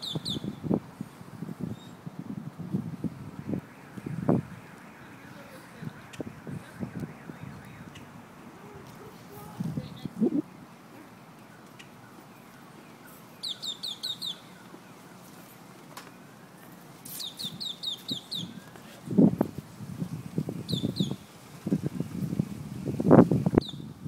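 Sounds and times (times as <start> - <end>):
bird chirping: 0.0 - 0.6, 11.4 - 15.2, 17.1 - 18.6, 20.7 - 21.2, 23.6 - 24.0.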